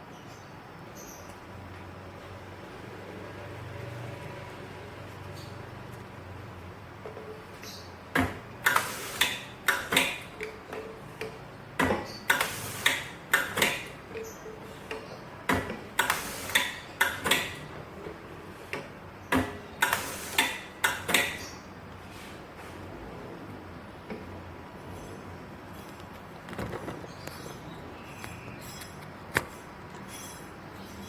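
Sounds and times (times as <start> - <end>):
faint machine hum: 0.0 - 31.0
labeling machine clicks and knocks: 8.1 - 21.4.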